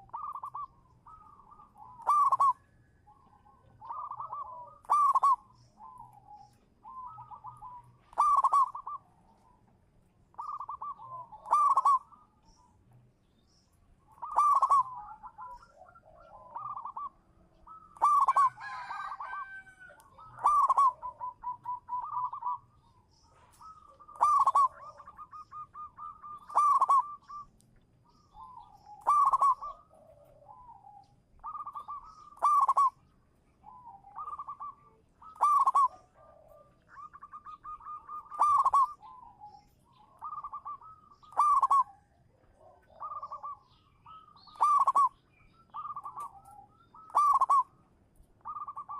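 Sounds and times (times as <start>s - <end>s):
dove cooing: 0.0s - 13.0s, 14.0s - 48.9s.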